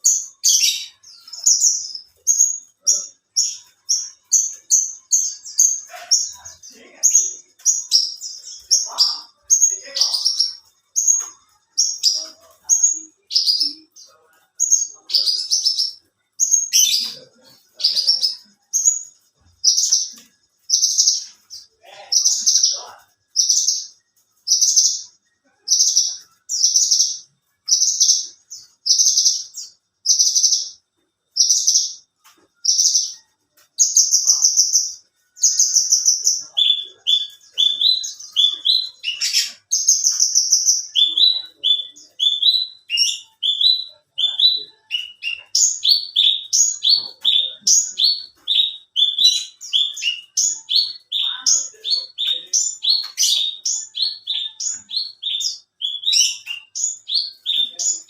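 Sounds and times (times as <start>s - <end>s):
bush lark singing: 32.6s - 58.0s.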